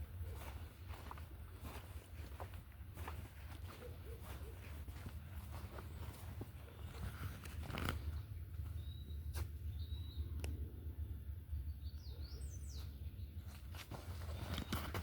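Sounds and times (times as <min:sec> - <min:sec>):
steady low rumble: 0:00.0 - 0:13.5
birds whistling and chirping: 0:08.0 - 0:10.6, 0:11.7 - 0:13.6.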